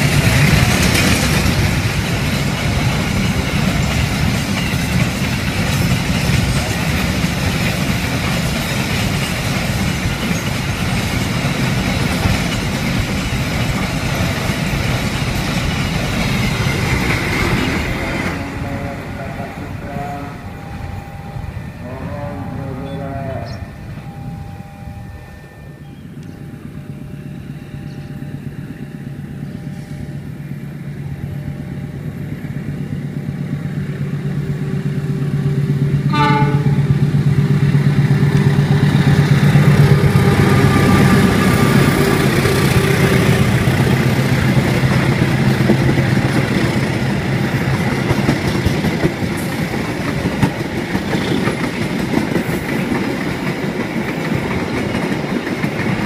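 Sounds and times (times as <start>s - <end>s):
wheels clattering on rails: 0.0s - 19.7s, 32.3s - 56.0s
diesel locomotive engine drone: 0.0s - 56.0s
train horn blast: 17.8s - 28.2s, 36.0s - 37.4s, 39.4s - 44.0s.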